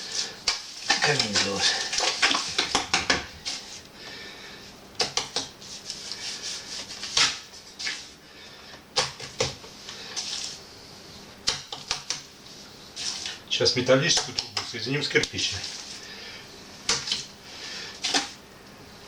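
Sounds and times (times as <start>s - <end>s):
masonry scraping and rubbing: 0.0s - 3.8s.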